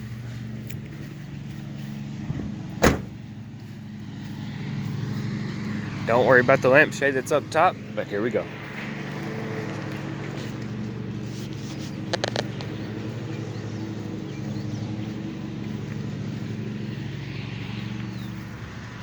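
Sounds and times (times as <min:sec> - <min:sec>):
steady engine hum: 0:00.0 - 0:19.0.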